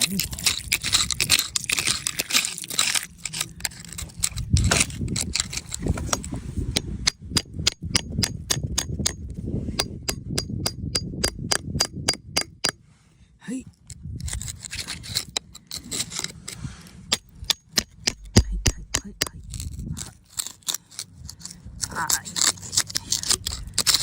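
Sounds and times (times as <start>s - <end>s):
scraping: 0.0s - 7.0s, 14.2s - 24.0s
hand tool tapping rock: 0.0s - 9.2s, 9.8s - 12.8s, 17.1s - 20.5s, 22.4s - 24.0s.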